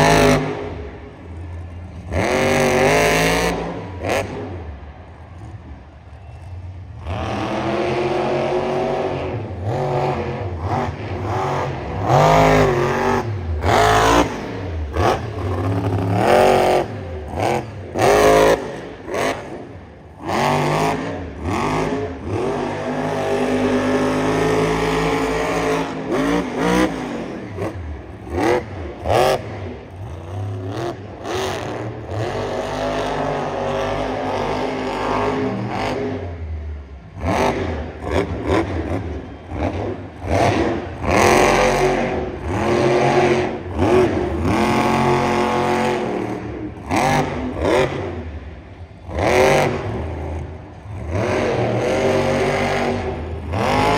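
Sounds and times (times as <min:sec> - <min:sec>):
monster truck engine revving: 0:00.0 - 0:05.8, 0:06.4 - 0:53.9.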